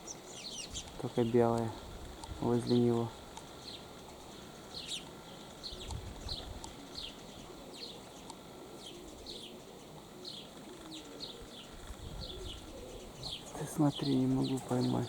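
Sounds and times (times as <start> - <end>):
small birds chirping: 0.0 - 15.0
wind rumble on microphone: 1.8 - 2.6, 5.6 - 7.1, 11.7 - 13.4.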